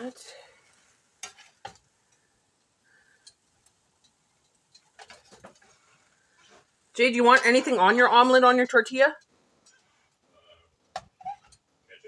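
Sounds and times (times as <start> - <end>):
utensils clicking on cookware: 1.2 - 2.2, 3.1 - 5.8, 7.0 - 8.6.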